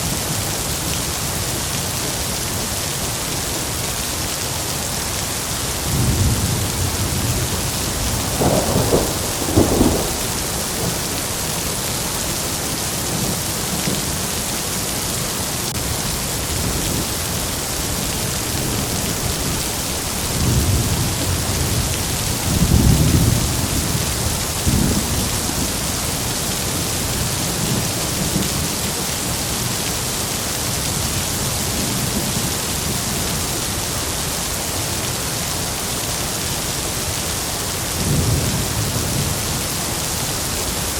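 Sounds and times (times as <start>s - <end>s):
heavy rain falling: 0.0s - 40.9s
thunder rumbling: 5.9s - 14.0s, 17.8s - 28.6s.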